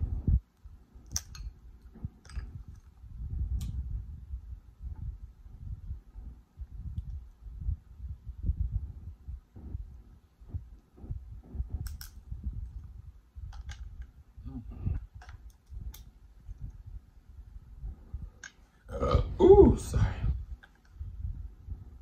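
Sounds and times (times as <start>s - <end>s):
shell and fork clicks: 1.0s - 1.5s, 11.8s - 12.2s.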